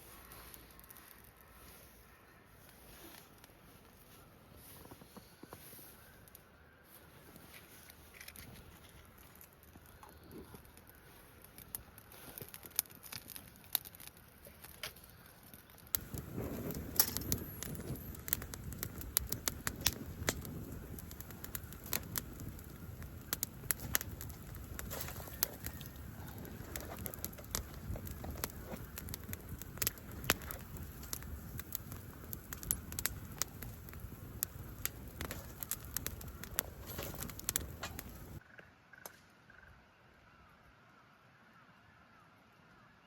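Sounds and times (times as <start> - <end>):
wood fire crackling and popping: 0.0 - 2.0, 7.1 - 38.4.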